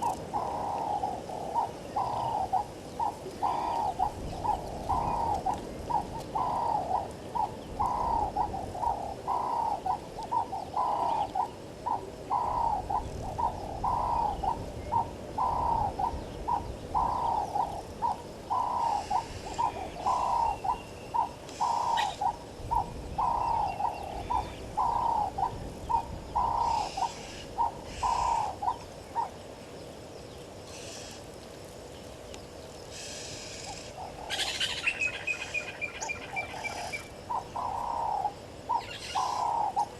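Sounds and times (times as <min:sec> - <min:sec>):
bird calling low notes: 0:00.0 - 0:29.5, 0:32.9 - 0:39.9
birds chirping faintly: 0:00.0 - 0:39.9.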